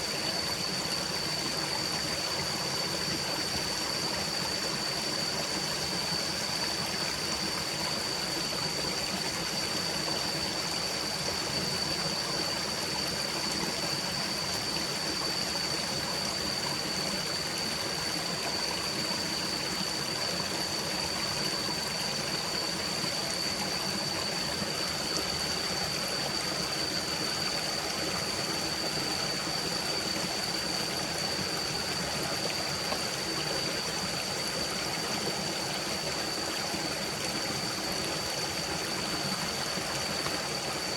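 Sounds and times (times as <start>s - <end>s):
constant high-pitched tone: 0.0s - 40.9s
stream flowing: 0.0s - 40.9s.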